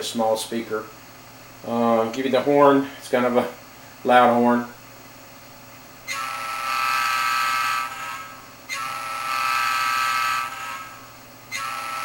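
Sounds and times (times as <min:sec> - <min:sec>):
model locomotive horn blasts: 0:06.1 - 0:12.0.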